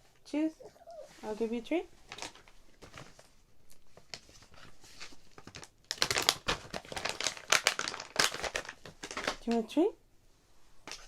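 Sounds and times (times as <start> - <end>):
packaging crinkling: 2.0 - 9.5.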